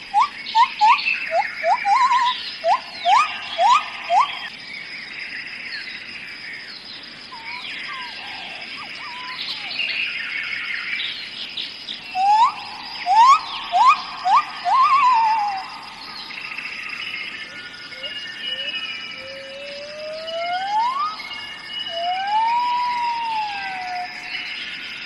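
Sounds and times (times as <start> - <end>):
birds calling: 0.0 - 4.6, 6.8 - 25.0
high insect drone: 0.0 - 25.0
bird rising whistled notes: 0.1 - 4.5, 12.0 - 24.8.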